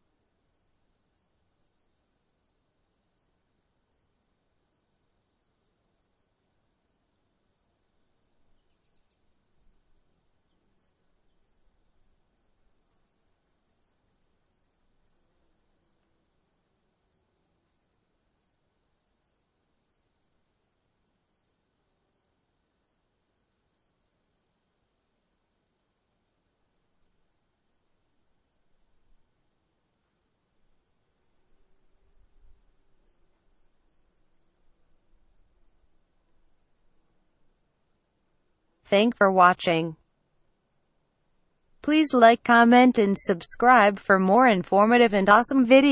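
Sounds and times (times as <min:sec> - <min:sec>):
insects chirping: 0:03.1 - 0:17.2.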